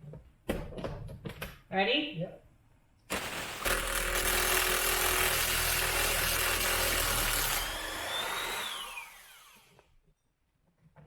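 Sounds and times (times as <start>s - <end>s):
power tool whining: 3.1s - 9.9s.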